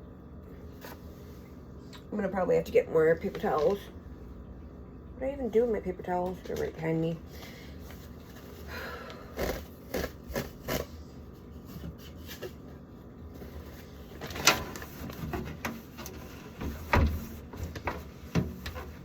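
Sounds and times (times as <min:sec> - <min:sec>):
knocks and clatters around refrigerator: 0:14.2 - 0:19.0.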